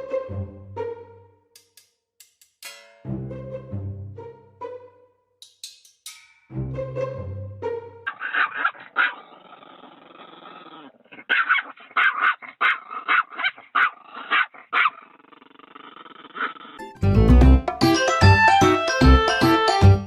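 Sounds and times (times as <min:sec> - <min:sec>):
dog barking: 0:08.1 - 0:09.4, 0:11.2 - 0:15.1
dog growling: 0:08.1 - 0:16.8.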